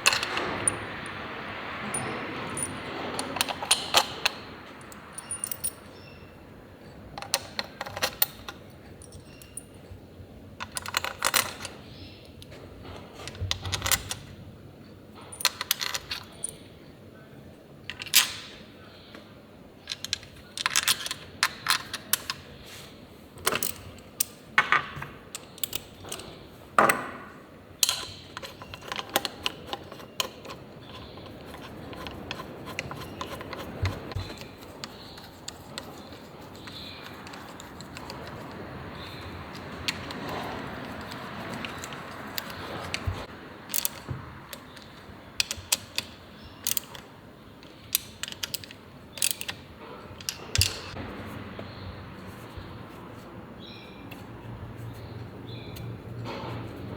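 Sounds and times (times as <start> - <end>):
metal tools clinking: 0.0 - 6.4, 7.2 - 9.9, 27.8 - 51.0.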